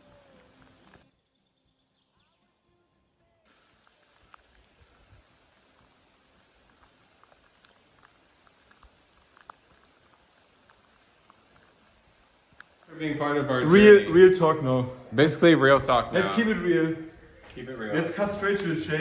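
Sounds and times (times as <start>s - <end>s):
faint rain hiss: 0.0s - 1.0s, 3.5s - 19.0s
raindrops ticking: 3.5s - 13.8s.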